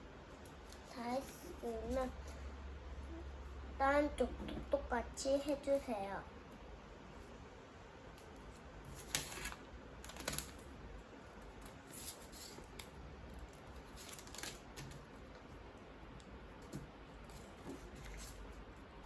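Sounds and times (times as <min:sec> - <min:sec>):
paper crinkling and rustling: 0:08.9 - 0:10.8, 0:11.5 - 0:15.3, 0:17.2 - 0:18.6.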